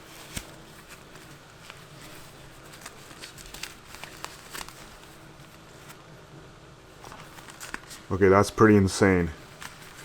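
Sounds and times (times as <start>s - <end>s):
glove handling clicks and rustles: 0.0s - 6.0s, 7.0s - 8.1s, 9.4s - 10.0s.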